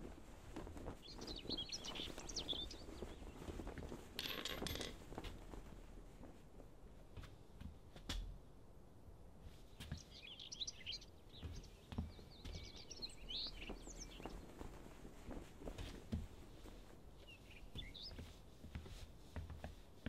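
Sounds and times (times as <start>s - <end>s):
outdoor background noise: 0.0s - 20.0s
small bird chirping: 1.0s - 3.5s, 9.8s - 14.6s, 17.2s - 18.4s.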